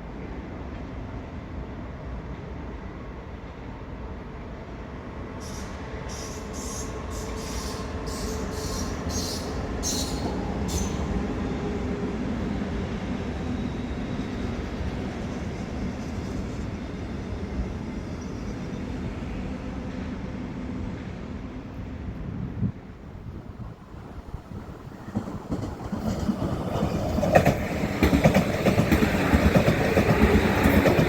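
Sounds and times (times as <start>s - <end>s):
train rumbling: 0.0s - 31.0s.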